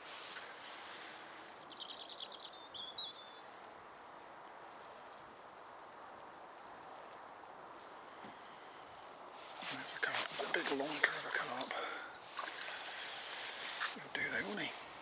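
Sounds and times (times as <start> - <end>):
outdoor background hiss: 0.0 - 15.0
small songbird singing: 1.6 - 3.5, 6.1 - 8.3, 10.6 - 15.0.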